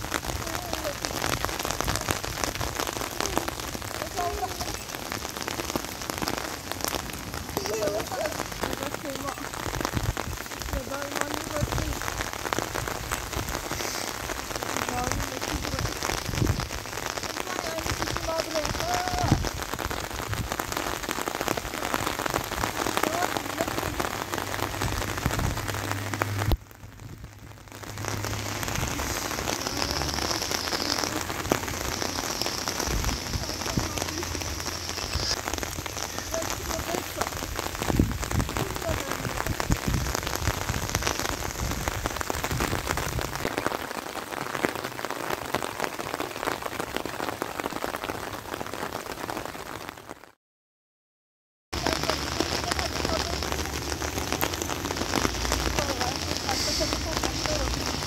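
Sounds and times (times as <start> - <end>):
rain on rocky ground: 0.0 - 50.4, 51.7 - 58.0.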